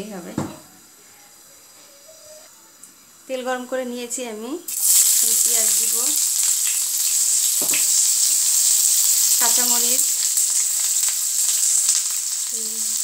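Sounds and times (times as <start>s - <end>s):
onions sizzling in hot oil: 2.8s - 13.0s.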